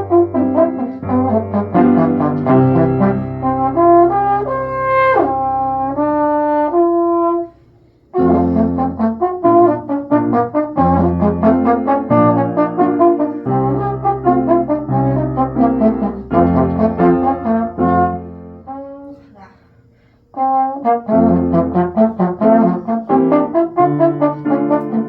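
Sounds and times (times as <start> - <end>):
brass ensemble playing: 0.0 - 7.6, 8.2 - 18.9, 20.4 - 25.0.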